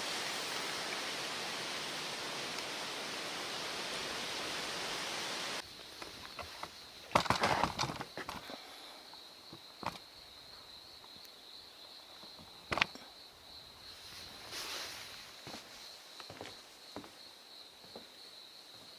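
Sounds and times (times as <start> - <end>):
high insect trill: 0.0 - 18.9
rustles and knocks: 6.0 - 8.5.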